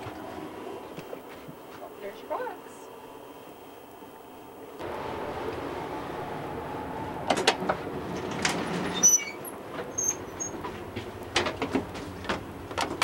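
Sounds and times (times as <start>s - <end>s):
train rumbling: 4.2s - 13.0s
train car rattling clicks: 7.3s - 13.0s
high squeaks: 8.2s - 10.6s.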